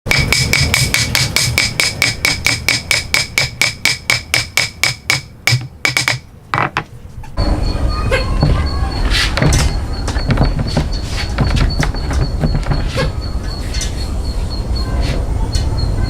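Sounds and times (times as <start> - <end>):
hammer blows with metallic ring: 0.1 - 6.0.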